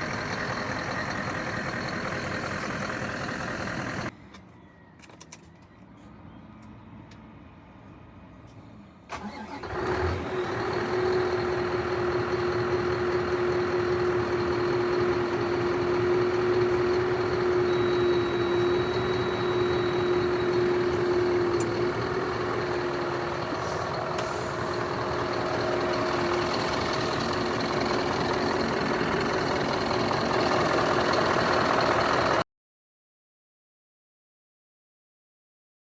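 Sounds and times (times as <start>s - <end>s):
truck diesel engine starting: 0.0s - 4.1s, 9.1s - 32.4s.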